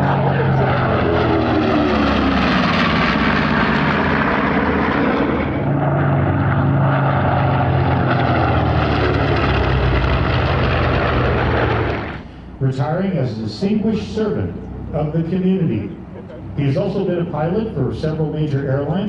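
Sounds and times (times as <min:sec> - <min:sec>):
propeller plane engines droning: 0:00.0 - 0:19.0.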